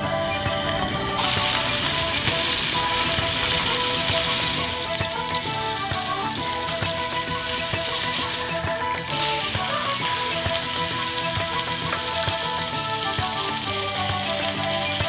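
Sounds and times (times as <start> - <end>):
patty sizzling over a fire: 0.0 - 15.0.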